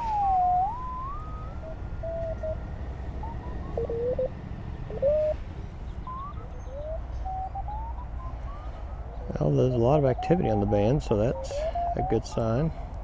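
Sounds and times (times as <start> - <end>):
radio band noise: 0.0 - 2.6, 3.2 - 4.3, 4.9 - 5.4, 6.1 - 12.8
morse code beeping tones: 0.0 - 5.4, 6.0 - 8.7.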